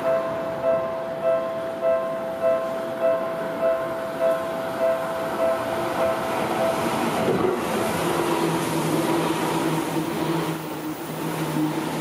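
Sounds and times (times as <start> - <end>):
electric train passing: 0.0 - 12.0
train motor hum: 0.0 - 12.0.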